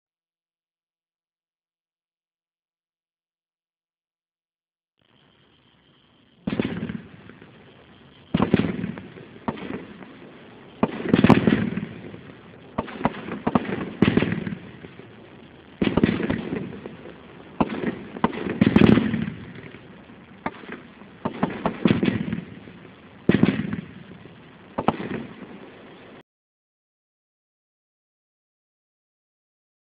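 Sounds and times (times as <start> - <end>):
firework shots exploding: 5.6 - 26.2.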